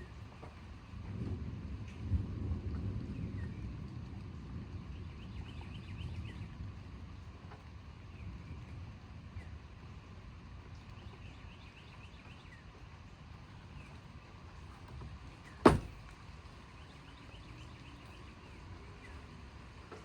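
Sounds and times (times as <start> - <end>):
sharp knock: 15.7 - 16.0.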